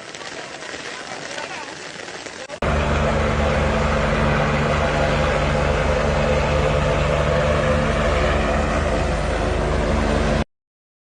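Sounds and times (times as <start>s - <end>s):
rushing noise: 2.4s - 10.4s
vehicle engine running: 2.6s - 10.5s.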